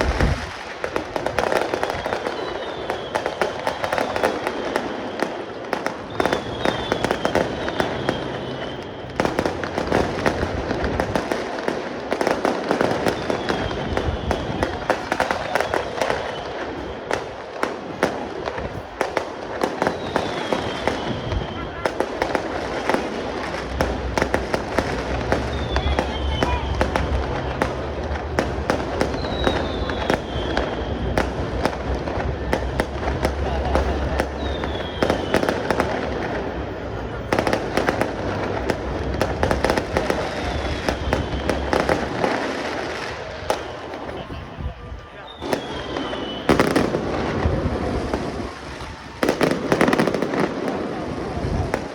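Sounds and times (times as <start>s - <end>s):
fireworks crackling pops and bangs: 0.0s - 51.9s
whistling firework shells: 0.2s - 51.9s.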